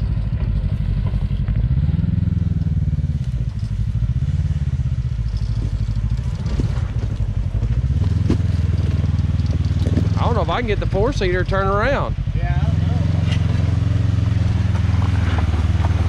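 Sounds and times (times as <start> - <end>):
off-road vehicle engine revving: 0.0 - 16.0
rocks knocking: 5.6 - 10.4, 13.3 - 16.0.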